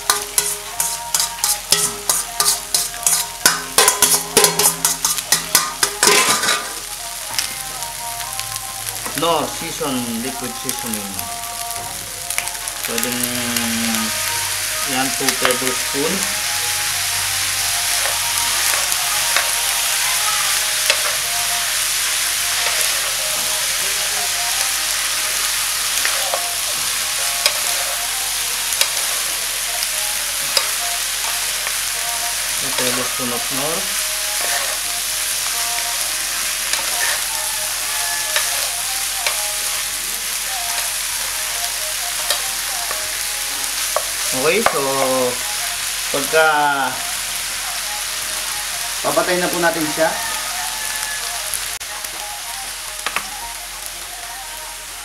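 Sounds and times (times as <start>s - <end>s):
meat sizzling in a pan: 0.0s - 55.0s
utensils scraping a pan: 0.1s - 6.8s, 32.7s - 34.9s, 36.6s - 37.4s.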